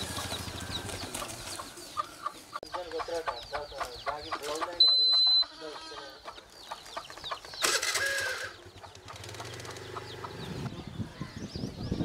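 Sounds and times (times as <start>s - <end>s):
birds chirping: 0.0s - 12.0s
short high beep: 4.8s - 5.5s
harsh bird call: 7.6s - 9.8s.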